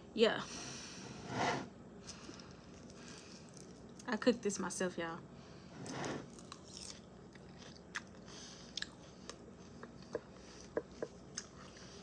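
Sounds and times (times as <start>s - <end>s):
person chewing: 6.3s - 12.0s.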